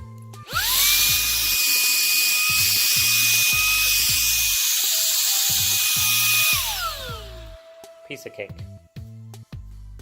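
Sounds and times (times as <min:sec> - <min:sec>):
handheld vacuum motor whine: 0:00.5 - 0:07.8.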